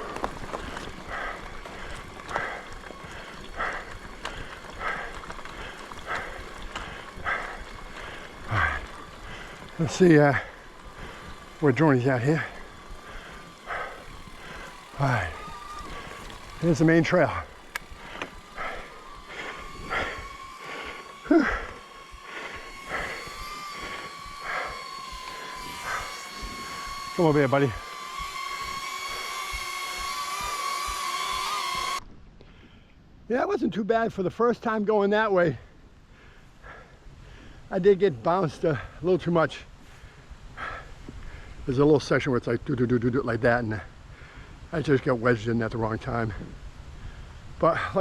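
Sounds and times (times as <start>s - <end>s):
drone propellers whining: 0.0s - 32.0s
person breathing hard: 0.0s - 33.0s, 36.0s - 37.7s, 39.8s - 41.7s, 43.9s - 44.7s.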